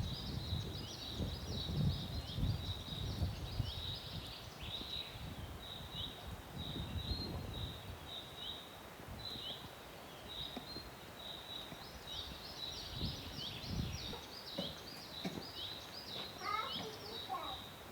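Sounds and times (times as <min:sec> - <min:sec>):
small birds chirping: 0:00.0 - 0:17.9.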